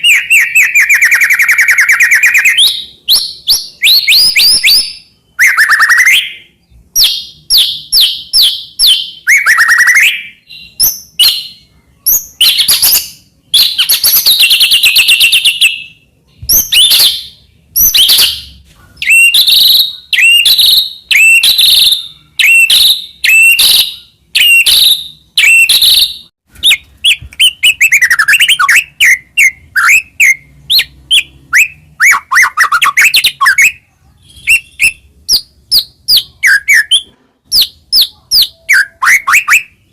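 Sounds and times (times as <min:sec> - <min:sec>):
songbird singing whistled phrases: 0:00.0 - 0:39.9.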